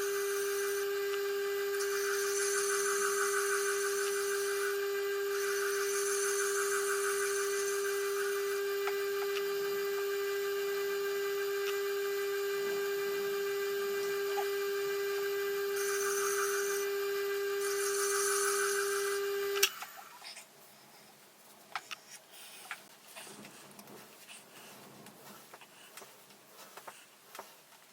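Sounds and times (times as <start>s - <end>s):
knife scraping on grinding wheel: 0.0s - 10.6s, 15.4s - 19.9s
sharpener motor humming: 0.0s - 20.0s.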